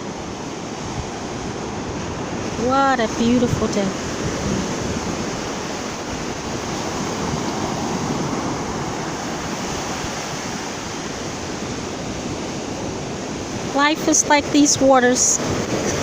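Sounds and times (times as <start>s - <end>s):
ocean surf washing on beach: 0.0s - 16.0s.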